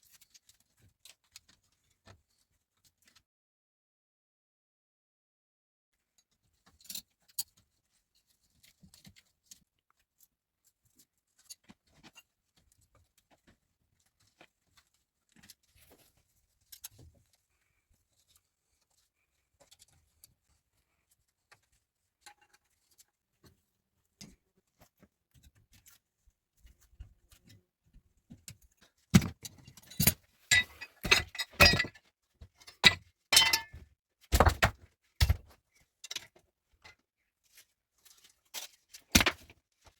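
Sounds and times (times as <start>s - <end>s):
hard objects clinking and knocking: 30.0s - 32.0s, 32.8s - 35.4s.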